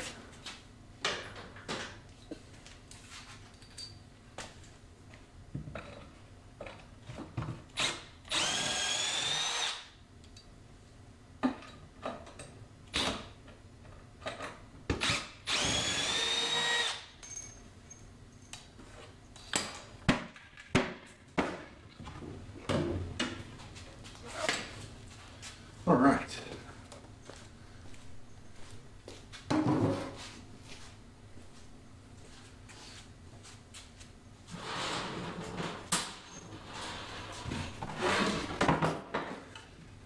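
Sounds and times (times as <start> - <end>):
power drill whining: 7.8 - 9.9, 15.0 - 17.1.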